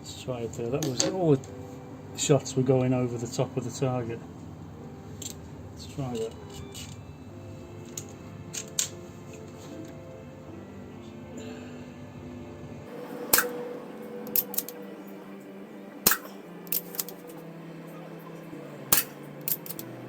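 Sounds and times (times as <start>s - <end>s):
air pistol shot crack: 13.3s - 13.6s, 16.0s - 16.8s, 18.9s - 19.2s.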